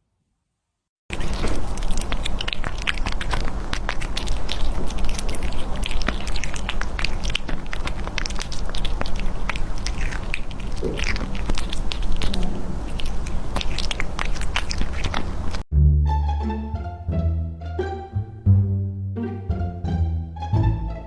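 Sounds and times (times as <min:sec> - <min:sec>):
cat chewing and crunching: 0:01.1 - 0:15.7.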